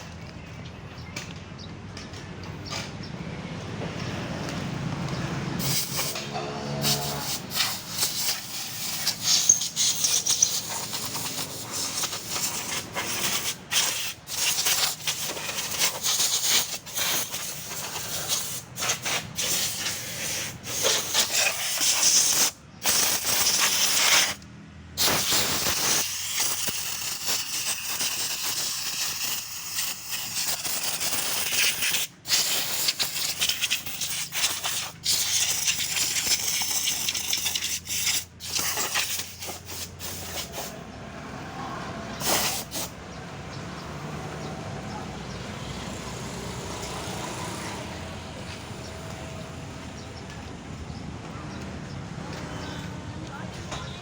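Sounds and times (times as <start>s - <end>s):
water spraying from a nozzle: 5.6s - 24.4s, 25.0s - 40.8s, 42.1s - 43.0s.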